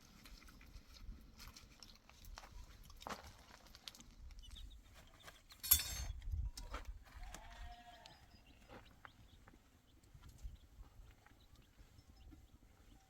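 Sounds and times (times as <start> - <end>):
farm animal bleating: 7.1 - 8.6.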